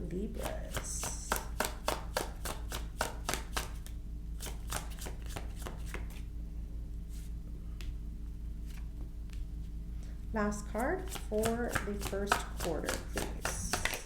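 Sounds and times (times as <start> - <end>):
cards being shuffled: 0.4 - 6.3, 11.0 - 14.0.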